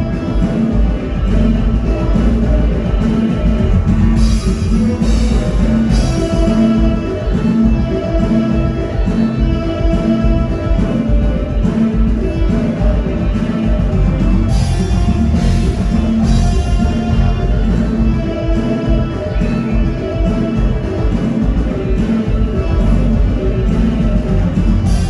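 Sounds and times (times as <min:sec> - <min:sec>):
live band music through speakers: 0:00.0 - 0:25.0.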